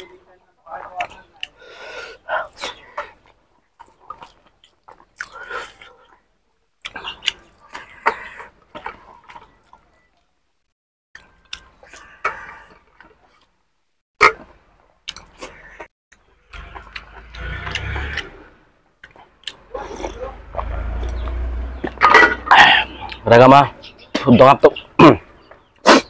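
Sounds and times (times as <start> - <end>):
chewing and smacking: 2.5 - 10.3, 14.3 - 18.3, 19.0 - 22.1.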